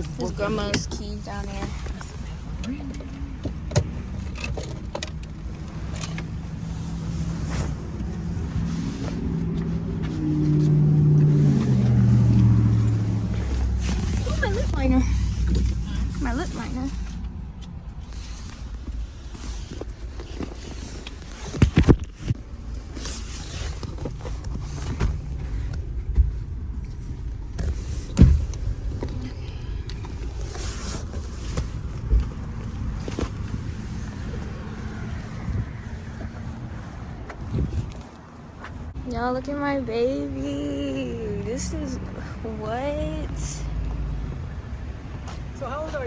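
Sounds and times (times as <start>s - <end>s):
rustling: 0.0s - 39.0s
car engine humming: 0.0s - 46.0s
low steady rumble: 0.0s - 46.0s.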